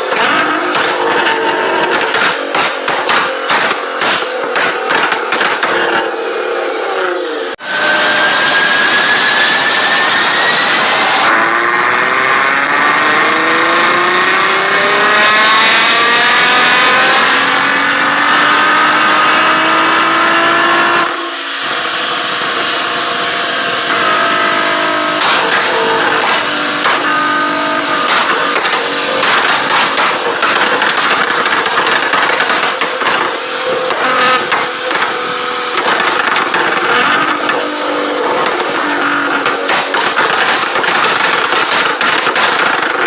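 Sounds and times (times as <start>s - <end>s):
car engine accelerating hard: 0.0s - 43.0s
exhaust crackles: 23.5s - 43.0s.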